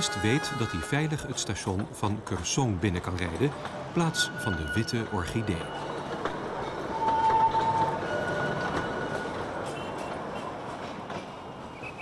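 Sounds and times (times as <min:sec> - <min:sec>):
train wheels rumbling on rail: 0:00.0 - 0:12.0
wheels squealing: 0:11.3 - 0:12.0.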